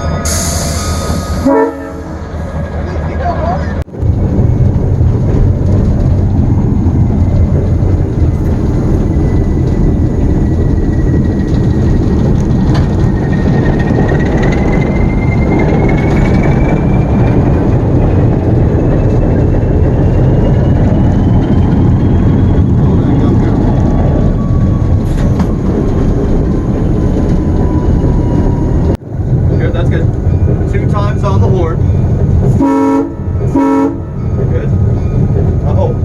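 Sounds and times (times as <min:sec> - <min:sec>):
diesel locomotive rumble: 0:00.0 - 0:36.0.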